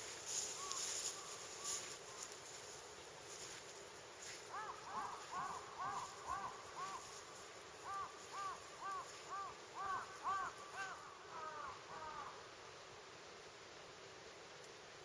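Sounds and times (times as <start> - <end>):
bird calling: 0.0 - 2.4, 4.4 - 12.4.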